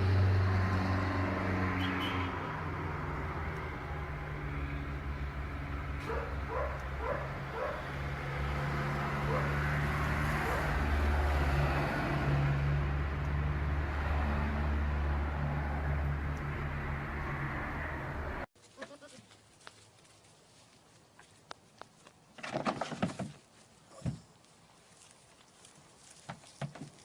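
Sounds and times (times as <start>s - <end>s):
vehicle engine hum: 0.0s - 18.5s
dog yelping: 6.0s - 7.8s.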